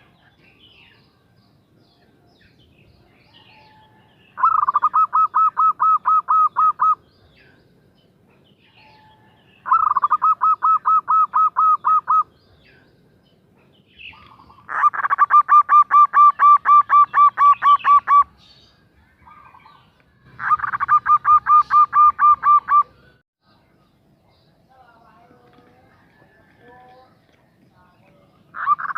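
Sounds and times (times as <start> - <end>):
dove cooing: 4.4 - 7.0, 9.0 - 12.3, 14.1 - 18.3, 20.4 - 23.0.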